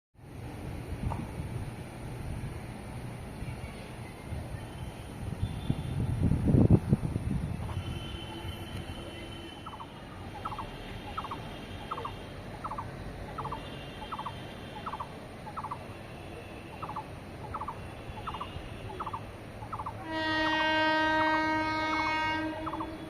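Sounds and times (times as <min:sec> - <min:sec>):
bird chirping: 0:09.6 - 0:15.9, 0:16.7 - 0:20.0.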